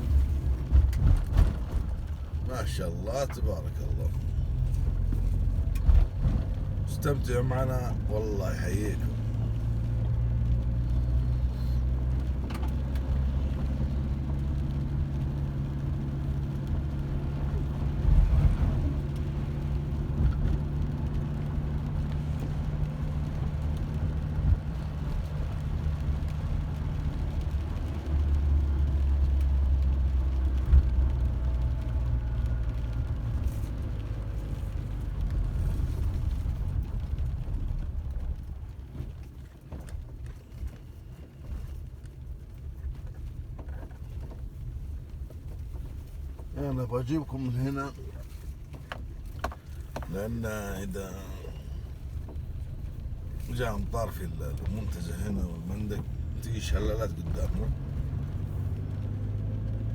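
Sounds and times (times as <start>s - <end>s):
car engine humming: 0.0s - 59.9s.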